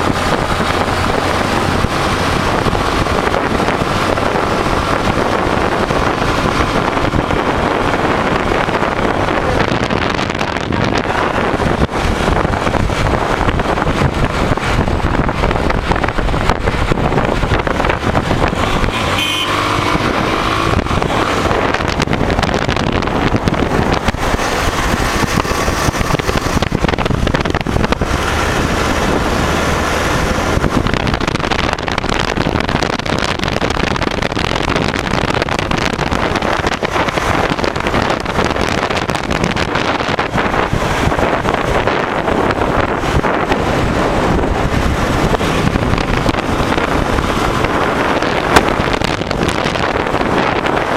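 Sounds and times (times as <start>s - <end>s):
motorcycle engine running: 0.0s - 50.9s
wind rushing over microphone: 0.0s - 50.9s.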